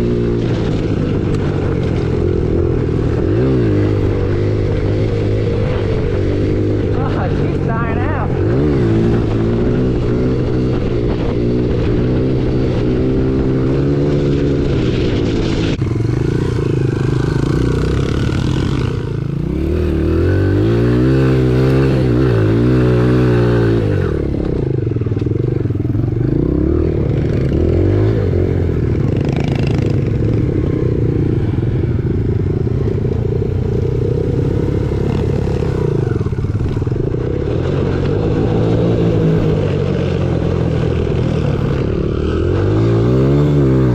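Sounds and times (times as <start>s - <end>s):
motorbike engine revving: 0.0s - 43.9s.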